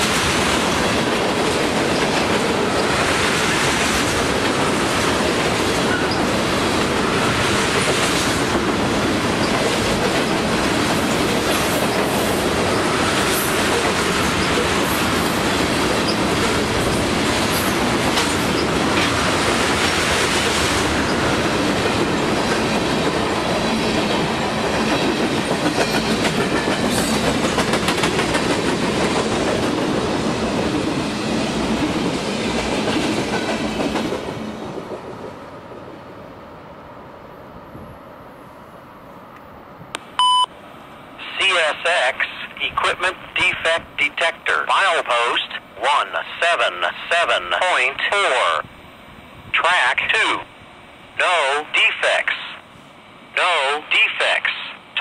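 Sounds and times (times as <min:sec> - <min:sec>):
freight train wheels clicking: 0:24.1 - 0:30.8.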